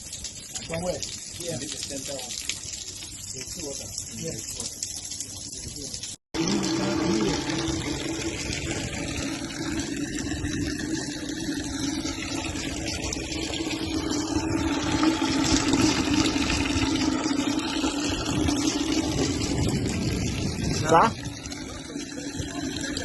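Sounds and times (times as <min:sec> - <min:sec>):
water draining: 0:00.0 - 0:23.0.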